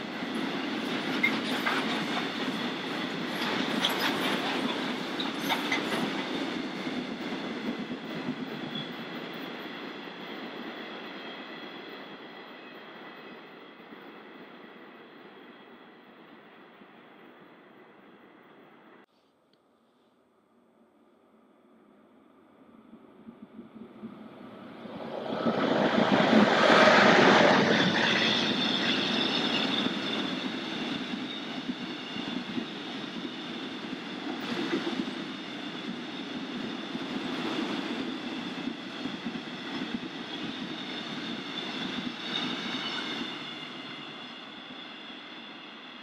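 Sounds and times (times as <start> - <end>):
freight train rumbling past: 22.3 - 46.0.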